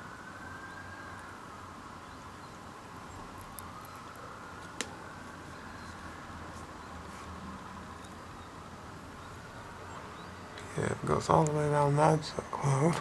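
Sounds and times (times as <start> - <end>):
room hum and hiss: 0.0 - 13.0.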